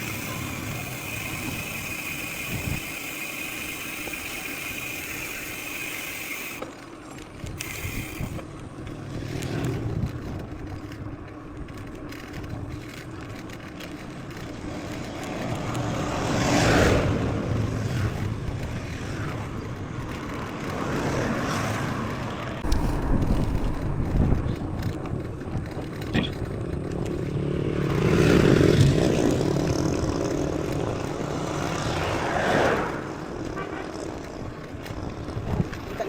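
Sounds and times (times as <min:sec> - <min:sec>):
bike rattles and clicks: 0:00.0 - 0:36.0
bike tyre noise on ground: 0:00.0 - 0:36.0
low rumble: 0:22.6 - 0:27.3.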